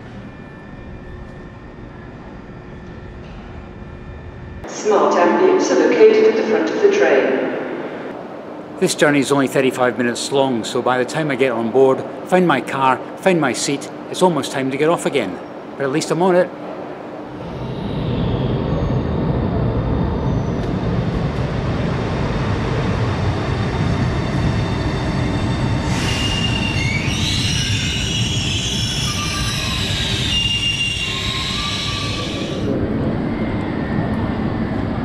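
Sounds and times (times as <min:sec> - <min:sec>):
train rumbling: 0:16.5 - 0:35.0
high squealing brakes: 0:17.4 - 0:21.5, 0:23.4 - 0:34.0.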